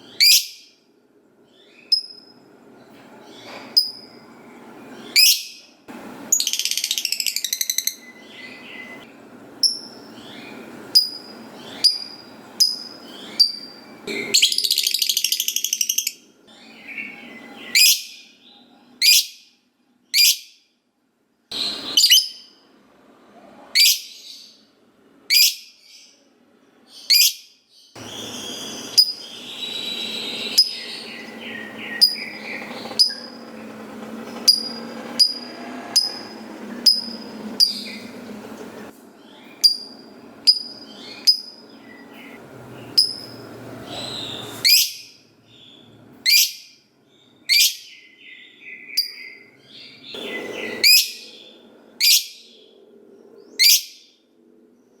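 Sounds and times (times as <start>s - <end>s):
bird high chirps: 0.0s - 0.8s, 4.9s - 5.7s, 6.3s - 19.5s, 21.5s - 22.6s, 23.8s - 24.6s, 25.3s - 26.1s, 27.0s - 33.5s, 34.4s - 38.2s, 39.2s - 52.7s, 53.5s - 54.1s
bird chattering trill: 6.3s - 9.0s, 28.0s - 33.5s, 34.4s - 38.2s.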